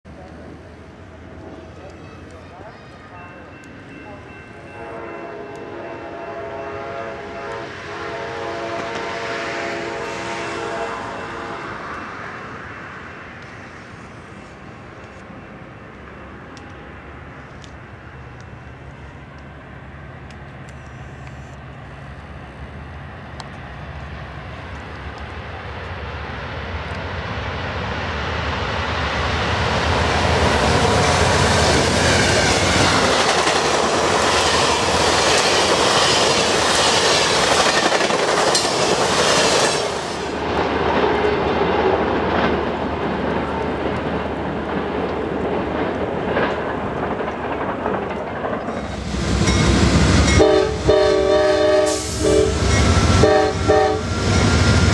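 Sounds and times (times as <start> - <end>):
train rumble: 0.1 - 54.9.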